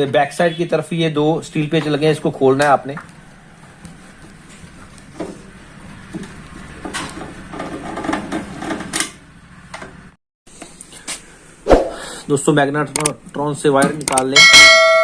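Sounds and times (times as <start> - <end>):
tool clicks on metal: 12.9 - 13.2, 13.8 - 14.3.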